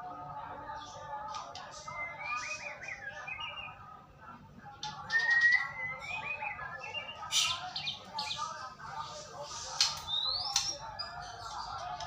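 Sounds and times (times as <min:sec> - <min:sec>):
songbird whistling: 0:01.9 - 0:03.8, 0:05.1 - 0:08.0, 0:10.1 - 0:10.7.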